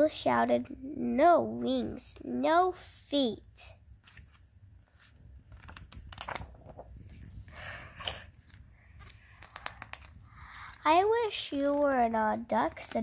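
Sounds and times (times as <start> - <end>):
paper rustling: 4.0 - 13.0.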